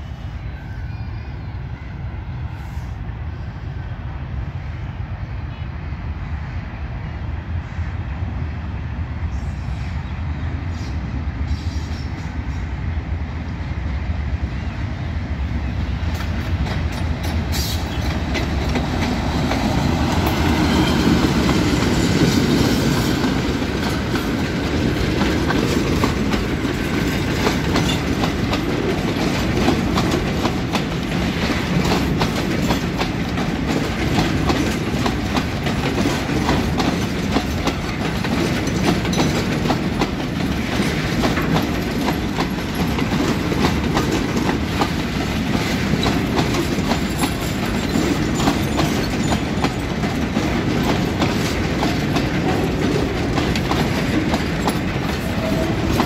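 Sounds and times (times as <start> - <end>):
freight train rumbling past: 0.0 - 56.0
wheels clattering over rail joints: 16.2 - 56.0.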